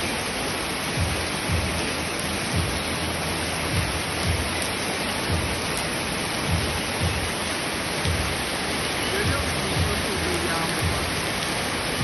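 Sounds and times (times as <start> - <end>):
heavy rain pouring: 0.0 - 12.0
low thumps: 3.7 - 4.7.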